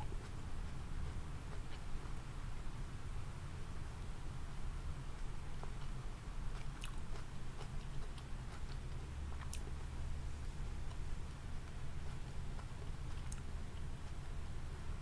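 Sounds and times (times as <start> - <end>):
person chewing food: 0.0 - 2.3, 5.2 - 14.2
steady low hum: 0.0 - 15.0.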